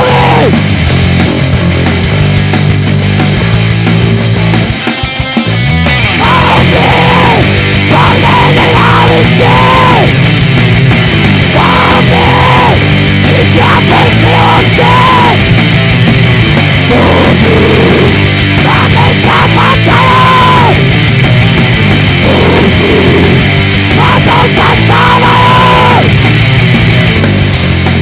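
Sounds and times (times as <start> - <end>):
heavy metal band playing: 0.0 - 28.0.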